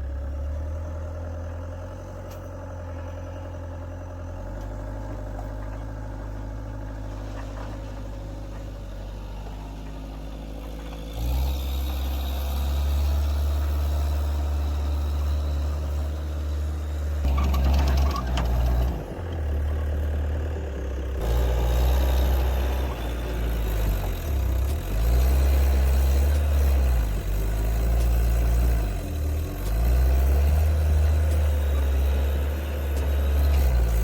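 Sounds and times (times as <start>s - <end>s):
diesel engine revving: 6.3s - 34.0s.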